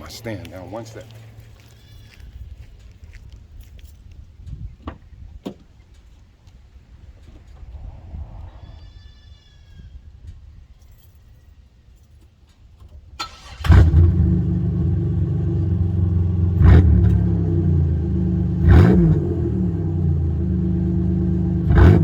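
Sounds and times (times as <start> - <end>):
engine cranking: 13.2 - 15.2
engine revving: 13.3 - 22.0.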